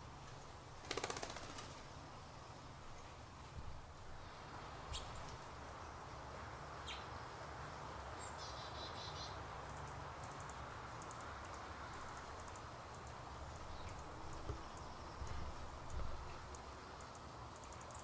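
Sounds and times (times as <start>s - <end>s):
small birds chirping: 4.8s - 6.1s, 6.8s - 7.2s, 8.1s - 18.0s.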